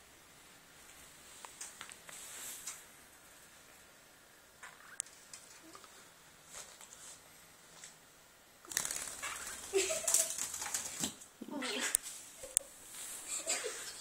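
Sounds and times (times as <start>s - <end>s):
birds scuffling and fluttering: 4.6s - 8.0s, 8.6s - 14.0s
bird taps and rustles: 8.7s - 11.2s.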